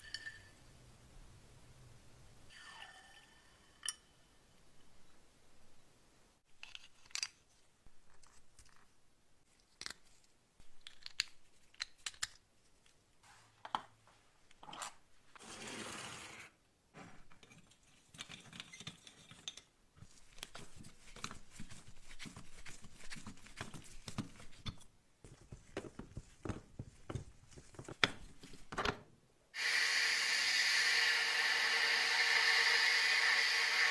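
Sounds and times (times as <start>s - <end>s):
small parts clicking and tapping: 6.6s - 8.9s, 9.5s - 13.0s.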